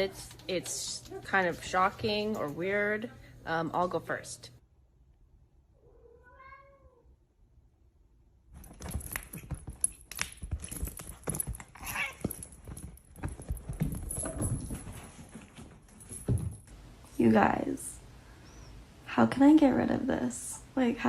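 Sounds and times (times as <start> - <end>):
cat meowing: 5.8 - 7.1
irregular knocks and rustling: 8.6 - 17.1.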